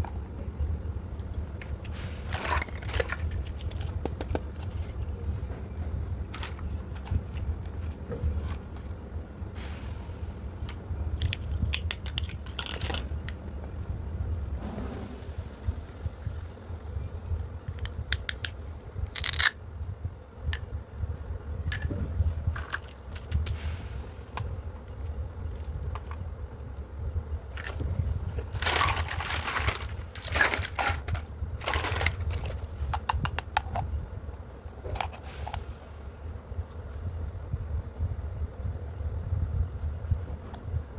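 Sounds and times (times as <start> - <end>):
low handling rumble: 0.0 - 40.9
packaging rustling: 1.8 - 5.1, 6.2 - 8.9, 19.1 - 19.6, 27.5 - 32.8
plastic toy parts clicking: 17.7 - 19.6.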